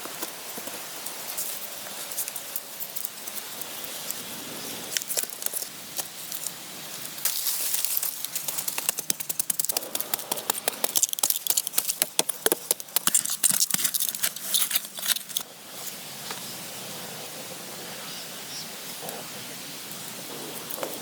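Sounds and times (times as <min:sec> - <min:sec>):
wood fire crackling: 0:00.1 - 0:15.5.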